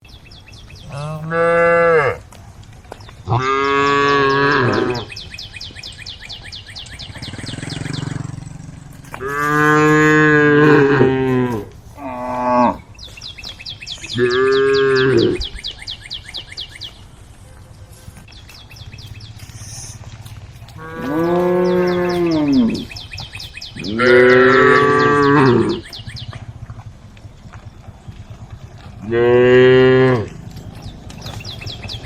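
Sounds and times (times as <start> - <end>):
cows mooing: 0.8 - 2.3, 3.2 - 5.2, 6.9 - 12.9, 14.0 - 15.6, 19.3 - 26.9, 27.5 - 32.0
high pulsing chirp: 3.8 - 10.0, 18.3 - 26.4.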